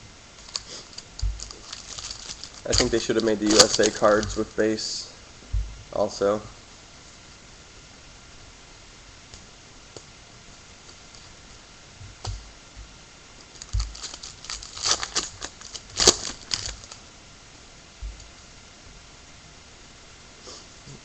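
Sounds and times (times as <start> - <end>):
room hiss: 0.0 - 21.0
cards clicking and crinkling: 0.4 - 4.5, 13.4 - 17.0.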